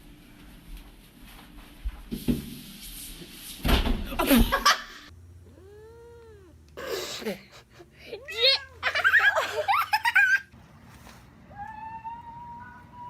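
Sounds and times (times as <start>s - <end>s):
cat meowing: 5.4s - 6.6s.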